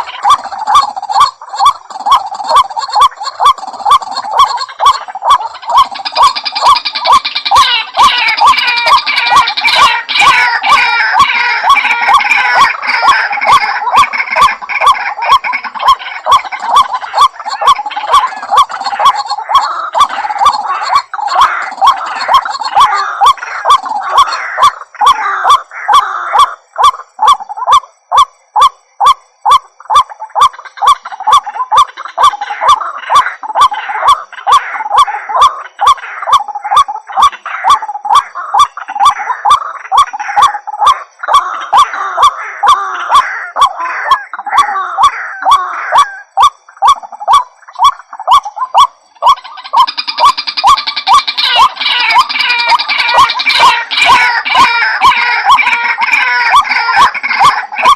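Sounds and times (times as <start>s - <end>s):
waterhen calling: 0.0s - 57.9s.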